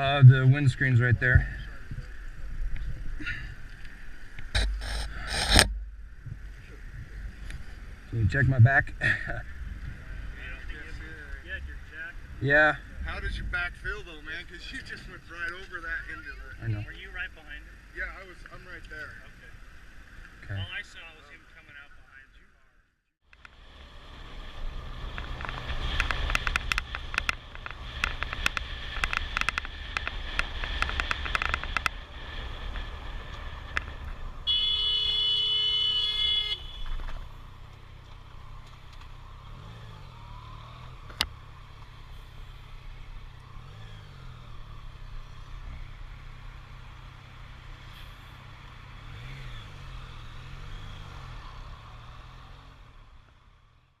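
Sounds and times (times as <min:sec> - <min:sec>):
vehicle engine and road noise: 0:00.0 - 0:54.0
steady pitched horn tone: 0:34.4 - 0:37.1.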